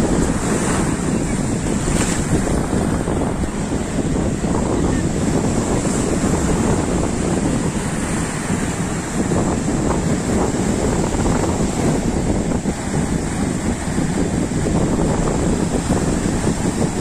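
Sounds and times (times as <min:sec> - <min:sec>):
sea surf: 0:00.0 - 0:17.0
wind on microphone: 0:00.0 - 0:17.0.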